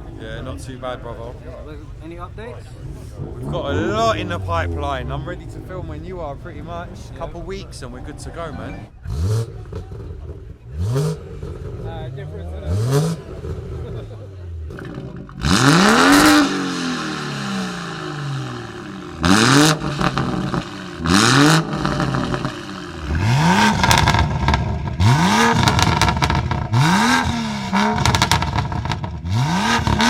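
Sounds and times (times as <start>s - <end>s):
car engine revving hard: 2.8s - 6.6s, 9.0s - 30.0s.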